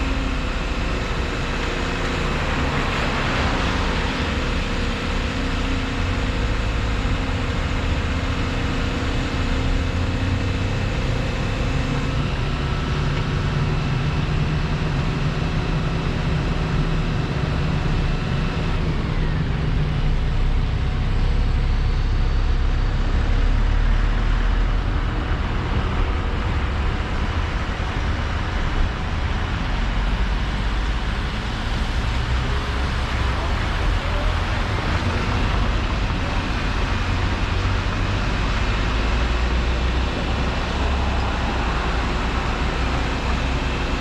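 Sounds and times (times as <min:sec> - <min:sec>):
broad steady rushing noise: 0:00.0 - 0:44.0
diesel construction machinery running: 0:00.0 - 0:44.0.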